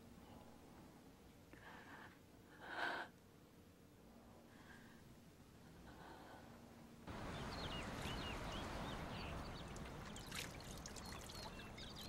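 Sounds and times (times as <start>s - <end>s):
outdoor hush: 0.0s - 12.0s
small birds chirping: 7.1s - 12.0s.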